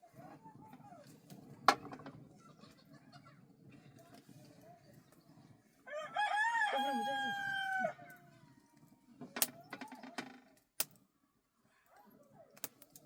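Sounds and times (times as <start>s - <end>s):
rooster crowing: 5.9s - 8.2s.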